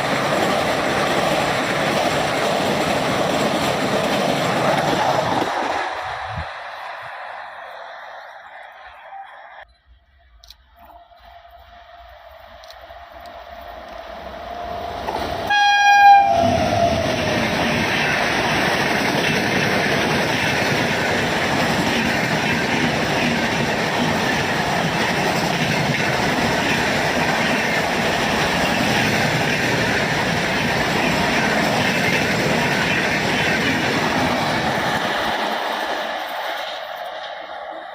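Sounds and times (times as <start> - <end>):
train coaches rushing past: 0.0 - 9.6, 11.0 - 37.9
train horn: 14.4 - 17.7.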